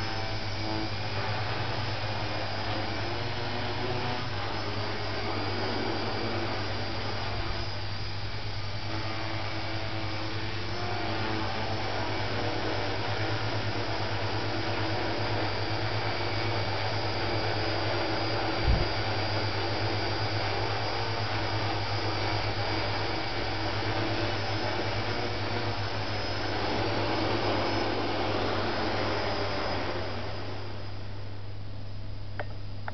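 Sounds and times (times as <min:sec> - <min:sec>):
quadcopter rotors whirring: 0:00.0 - 0:31.4
short thump: 0:18.6 - 0:18.9.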